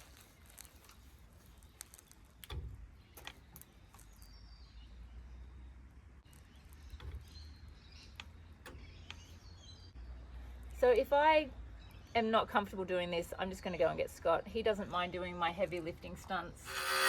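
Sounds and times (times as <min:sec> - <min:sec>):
birds chirping: 0:02.9 - 0:10.4.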